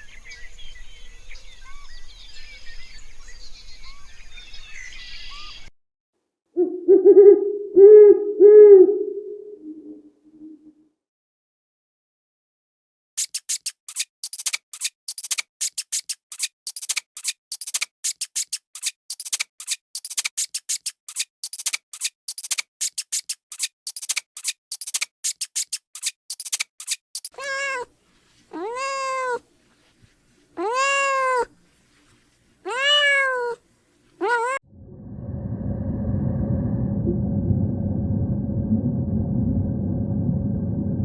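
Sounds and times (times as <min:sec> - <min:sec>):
rapid high-pitched clicking: 0:13.2 - 0:27.4
meow-like animal call: 0:27.4 - 0:27.9, 0:28.6 - 0:29.4, 0:30.6 - 0:31.5, 0:32.7 - 0:33.6, 0:34.2 - 0:34.6.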